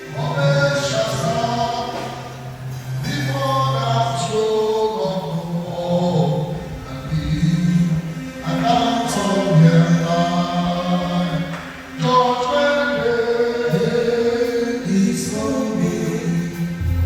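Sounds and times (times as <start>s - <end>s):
choir singing gospel: 0.0s - 17.0s.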